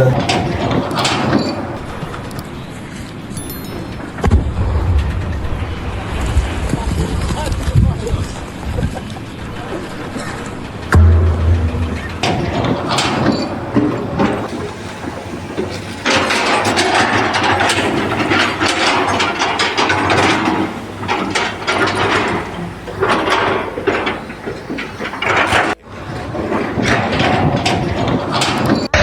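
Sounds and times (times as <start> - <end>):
mechanical clattering and knocking: 10.0 - 14.6, 15.6 - 29.0.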